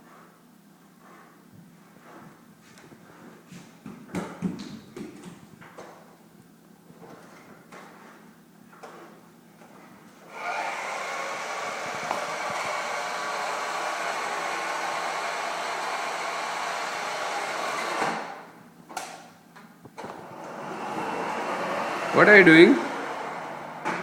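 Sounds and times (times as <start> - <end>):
toy truck motor whirring: 10.4 - 18.3.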